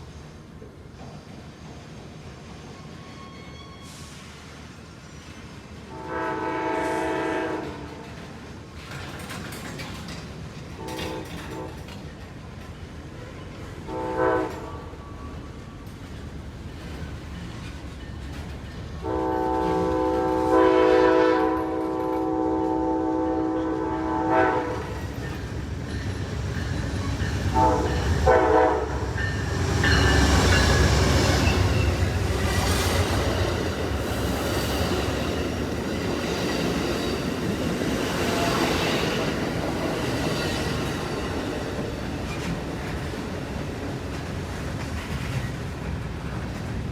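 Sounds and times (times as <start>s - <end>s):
locomotive horn blasts: 5.9s - 7.9s, 13.9s - 14.9s, 19.0s - 25.0s, 27.5s - 29.1s.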